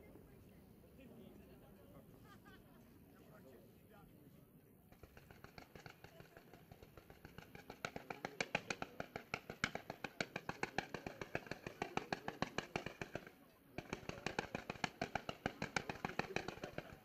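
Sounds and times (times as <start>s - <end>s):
fireworks popping rapidly: 4.9s - 17.0s.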